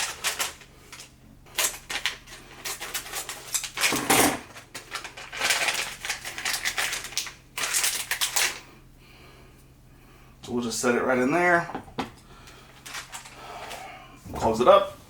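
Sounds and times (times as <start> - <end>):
plastic wrapper crinkling and tearing: 0.0 - 8.6.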